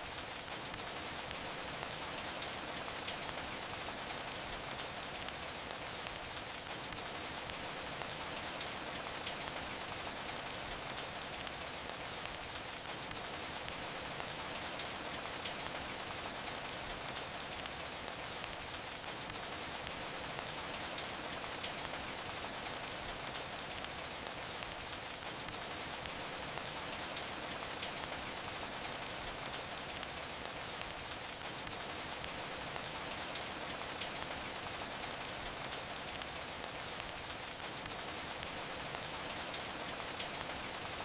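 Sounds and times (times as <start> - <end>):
steady rain: 0.0 - 41.0
wood fire crackling: 0.0 - 41.0.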